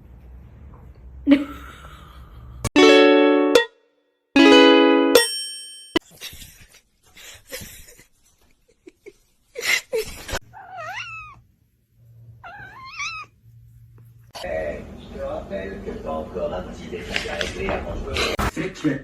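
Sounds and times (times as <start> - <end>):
plucked note: 2.8 - 3.8, 4.4 - 5.6
cat meowing: 10.4 - 11.4, 12.4 - 13.4.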